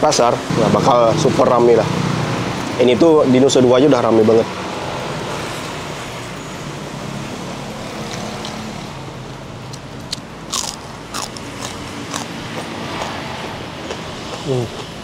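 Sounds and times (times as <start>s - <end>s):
road traffic hum: 0.0s - 15.0s
crunching clicks: 9.7s - 13.1s
chewing food: 9.7s - 13.2s.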